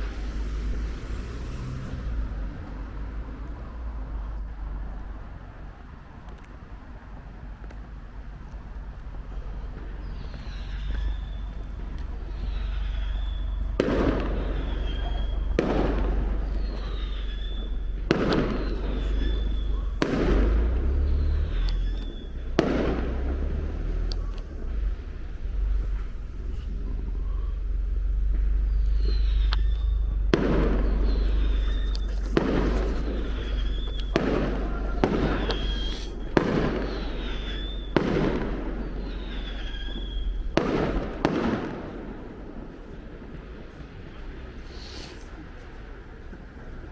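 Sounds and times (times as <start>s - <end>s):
high whistling tones: 0.0s - 2.5s, 10.0s - 22.6s, 24.2s - 41.2s
echoing rumble: 0.0s - 46.9s
fireworks banging: 0.0s - 46.9s.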